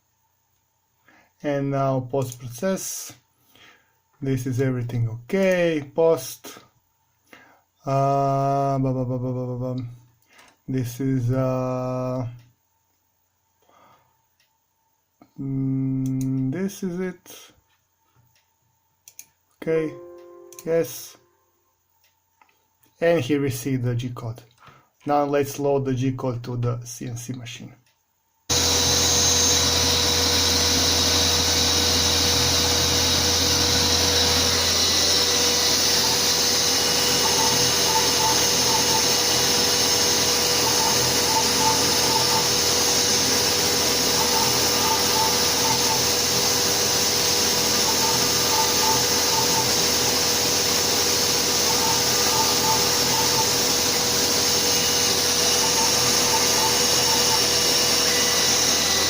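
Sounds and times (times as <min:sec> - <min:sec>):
dust extraction vacuum: 0:28.5 - 0:59.0
router spindle running: 0:28.5 - 0:59.0
short tones: 0:28.5 - 0:59.0.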